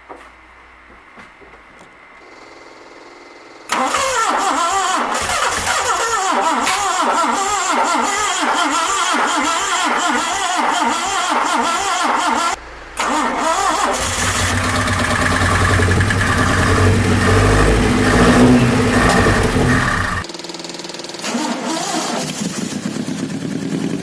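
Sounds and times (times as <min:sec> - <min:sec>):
engine running: 0:02.2 - 0:24.0
starter motor cranking: 0:03.7 - 0:22.8.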